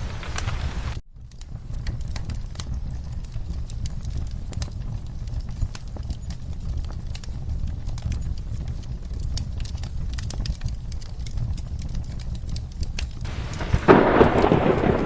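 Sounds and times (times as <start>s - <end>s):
rain: 0.0s - 1.0s, 8.0s - 15.0s
low steady rumble: 0.0s - 15.0s
wood fire crackling and popping: 0.0s - 15.0s
rolling thunder: 13.3s - 15.0s.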